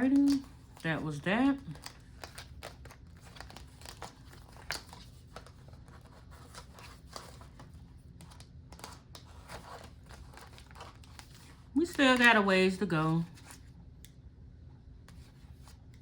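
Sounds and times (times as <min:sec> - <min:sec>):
paper money rustling: 0:00.0 - 0:12.5.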